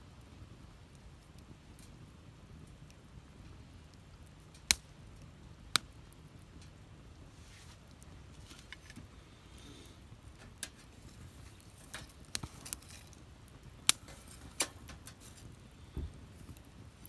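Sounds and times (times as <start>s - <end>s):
low rustle of flames: 0.0s - 17.0s
wood fire popping and snapping: 0.0s - 17.0s.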